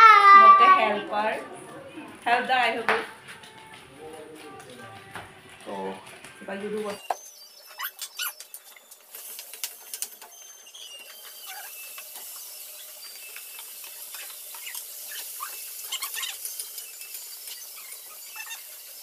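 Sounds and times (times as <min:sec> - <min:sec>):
potatoes sizzling in oil: 0:07.0 - 0:19.0.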